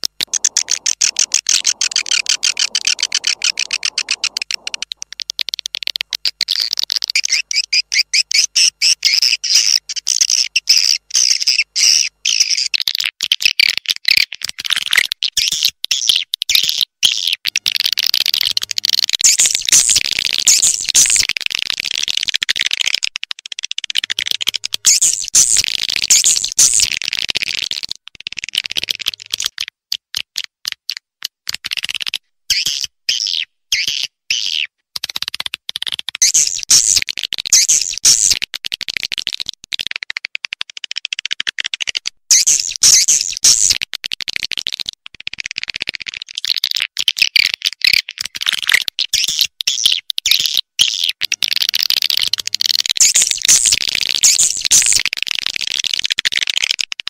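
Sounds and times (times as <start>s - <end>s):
swiftlets twittering: 0.2s - 5.2s, 18.2s - 22.1s, 24.2s - 26.9s, 36.2s - 38.4s, 51.4s - 55.0s.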